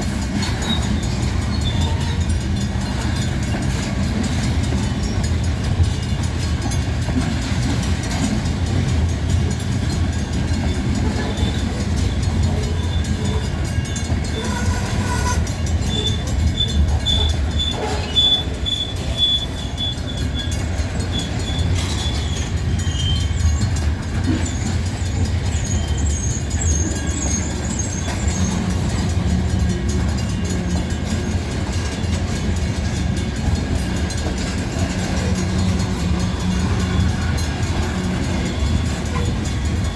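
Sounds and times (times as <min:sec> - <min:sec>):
train rumbling past: 0:00.0 - 0:39.9
high-pitched wheel squeals: 0:00.4 - 0:02.4, 0:10.7 - 0:29.4.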